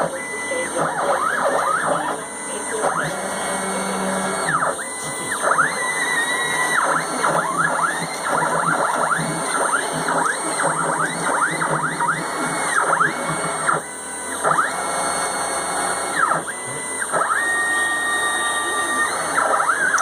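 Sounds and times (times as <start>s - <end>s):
stepper motors whining: 0.0s - 20.0s.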